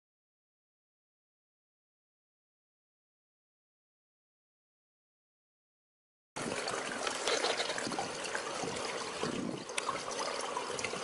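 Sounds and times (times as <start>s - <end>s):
pool water trickling and splashing: 6.4s - 11.0s.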